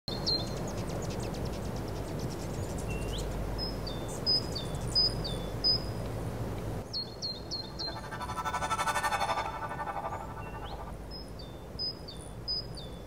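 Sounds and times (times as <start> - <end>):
low outdoor background rumble: 0.1 - 13.0
birds whistling calls: 6.9 - 13.0.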